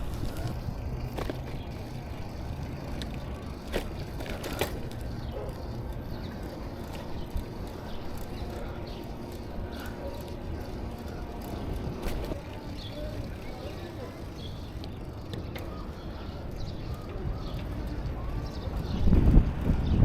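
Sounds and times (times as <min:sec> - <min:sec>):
bicycle tyres on road: 0:00.0 - 0:20.0
wind on microphone: 0:18.8 - 0:20.0.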